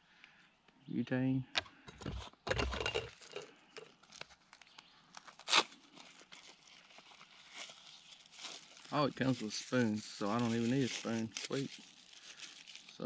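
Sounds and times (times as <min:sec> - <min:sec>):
packaging rustling and crinkling: 0:02.8 - 0:13.0.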